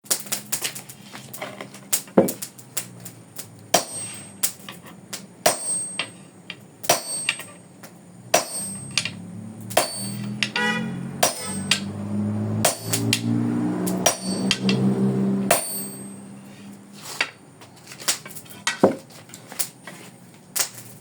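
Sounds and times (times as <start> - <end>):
hammer striking steel: 3.7 - 4.6, 5.4 - 6.2, 6.8 - 7.6, 8.3 - 12.0, 12.6 - 16.4.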